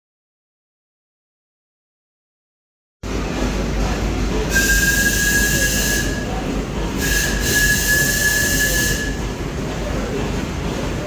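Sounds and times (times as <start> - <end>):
steam machinery rumbling: 3.0 - 11.0
steam whistle blasts: 4.5 - 6.3, 7.0 - 9.2.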